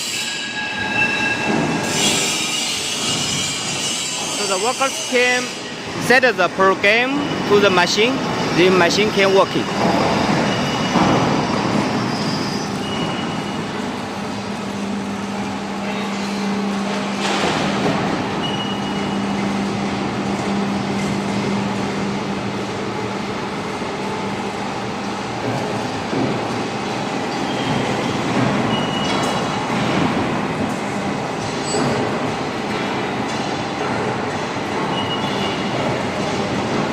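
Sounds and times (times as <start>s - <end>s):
brief high squeals: 0.2s - 4.5s.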